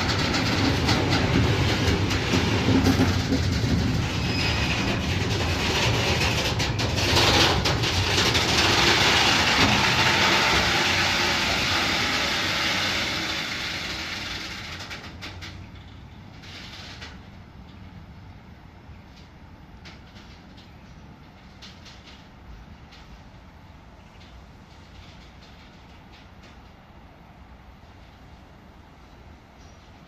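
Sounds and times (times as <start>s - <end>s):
train rolling past on rails: 0.0s - 30.0s.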